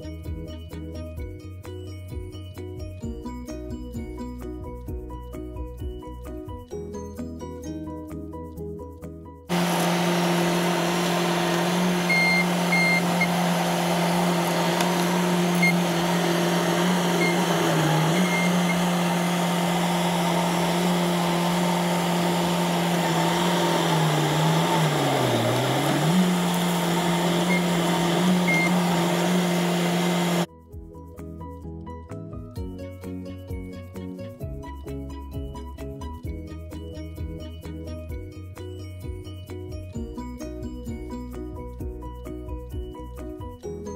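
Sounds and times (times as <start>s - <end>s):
diesel engine running: 9.5s - 30.5s.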